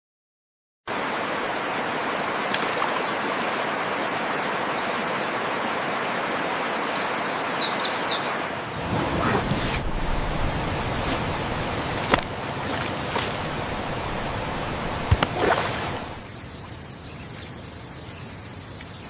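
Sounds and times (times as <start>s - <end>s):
rushing stream water: 0.9s - 19.0s
faint bird-like chirps: 16.2s - 19.0s.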